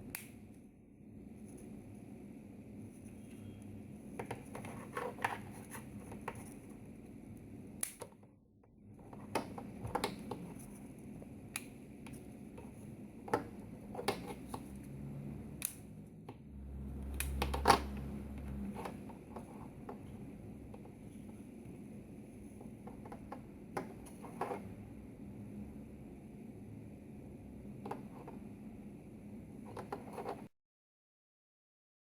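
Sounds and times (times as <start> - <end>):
small clicks and scrapes of handling: 3.0 - 6.9, 9.0 - 14.9, 22.4 - 24.7, 29.6 - 30.5
low rumble: 16.4 - 18.8.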